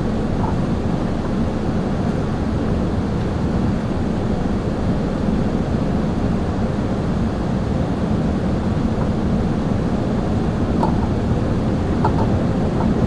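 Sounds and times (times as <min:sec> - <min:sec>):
airliner cabin engine and airflow rumble: 0:00.0 - 0:13.0.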